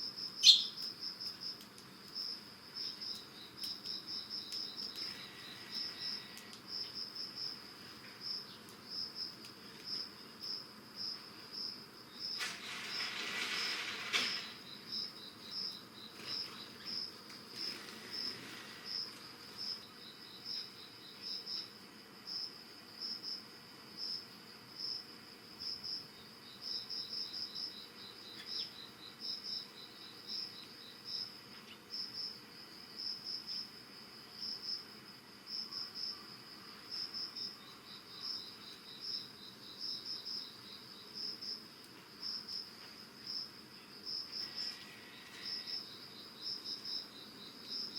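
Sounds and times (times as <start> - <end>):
crickets chirping: 0.0 - 47.9
insect rapid ticking trills: 0.0 - 47.9.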